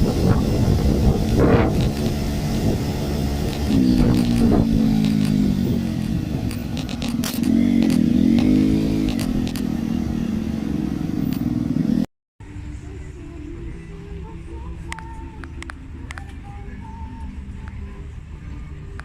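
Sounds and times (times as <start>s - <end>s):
motorbike engine revving: 0.0s - 12.1s
road noise: 0.0s - 19.0s
rattles: 0.2s - 9.8s.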